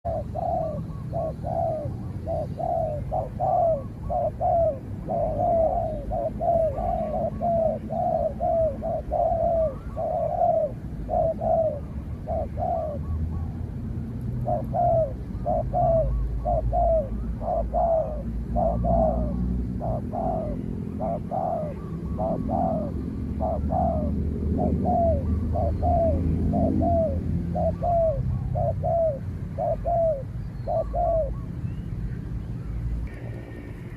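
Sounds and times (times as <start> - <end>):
doves cooing: 0.0 - 33.9
low rumble: 32.8 - 33.9.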